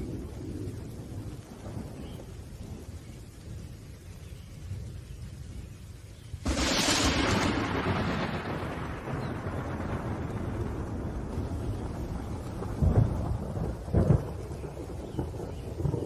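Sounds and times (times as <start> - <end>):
steady rain: 0.0 - 16.0
thunder: 6.4 - 16.0.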